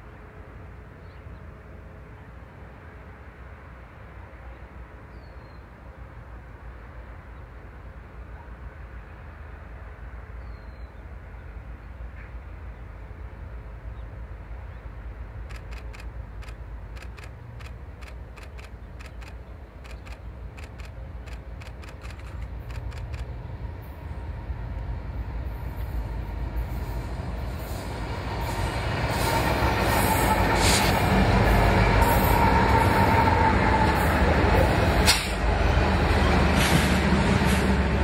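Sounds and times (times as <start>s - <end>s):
diesel locomotive rumble: 11.1s - 38.0s
sharp clicks: 15.4s - 23.4s.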